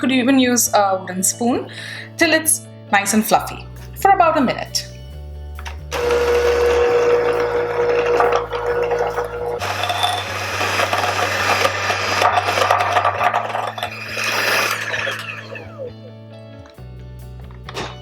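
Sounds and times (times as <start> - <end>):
electric hand mixer whining: 5.9 - 16.2.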